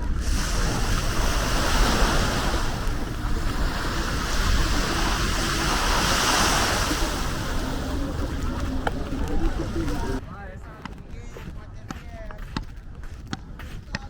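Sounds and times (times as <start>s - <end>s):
waves breaking on beach: 0.0s - 10.2s
wind rumbling on microphone: 0.0s - 14.0s.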